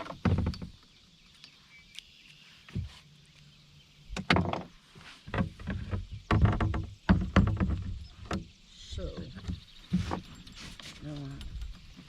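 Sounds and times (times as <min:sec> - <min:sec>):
gear knocking in a boat: 0:04.1 - 0:10.6.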